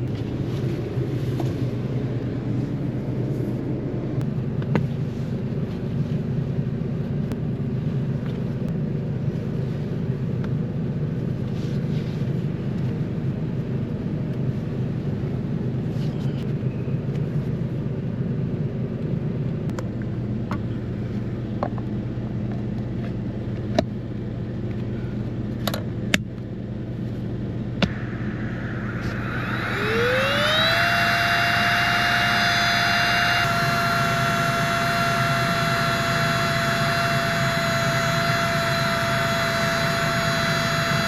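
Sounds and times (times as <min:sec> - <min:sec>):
generator humming: 0:27.7 - 0:41.0
rising whine: 0:27.8 - 0:41.0
loud hiss: 0:27.9 - 0:41.0.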